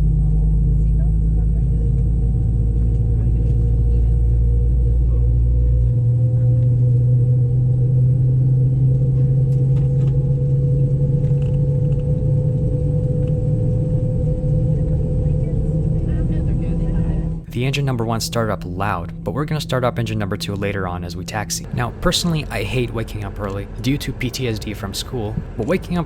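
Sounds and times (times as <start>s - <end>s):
deep engine rumble: 0.0s - 26.0s
jet engine drone: 0.0s - 26.0s.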